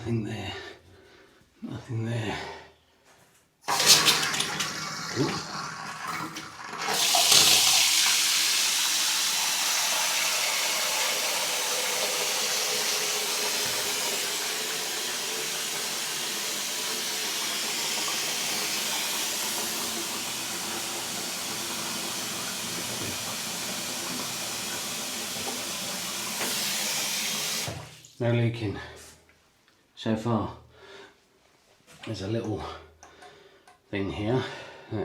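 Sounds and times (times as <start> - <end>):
tap water running into basin: 3.7 - 28.2.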